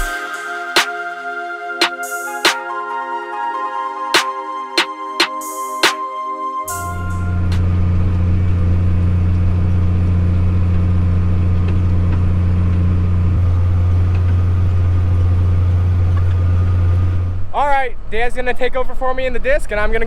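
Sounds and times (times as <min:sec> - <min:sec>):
tractor diesel engine droning: 0:06.7 - 0:18.1.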